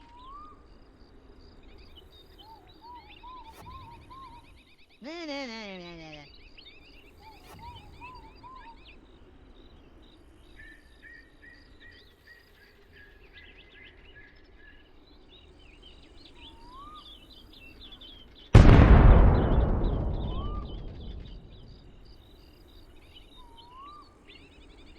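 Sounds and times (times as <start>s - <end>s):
loud boom: 18.6s - 22.1s.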